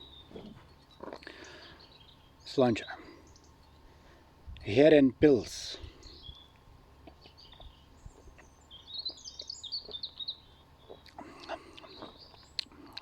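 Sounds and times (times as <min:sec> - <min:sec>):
quiet outdoor background: 0:00.0 - 0:13.0
small bird chirping: 0:06.0 - 0:12.7.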